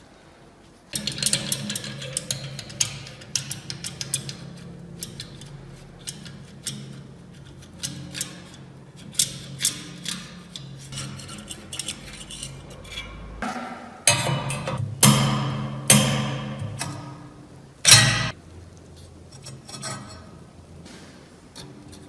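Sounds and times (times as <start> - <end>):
light metal clicks and taps: 0.9 - 13.2.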